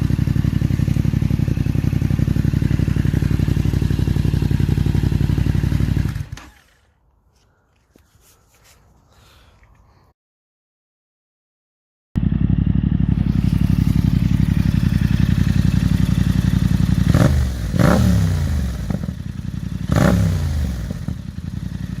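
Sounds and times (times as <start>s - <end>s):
motorcycle engine idling and revving: 0.0s - 6.9s, 12.2s - 22.0s.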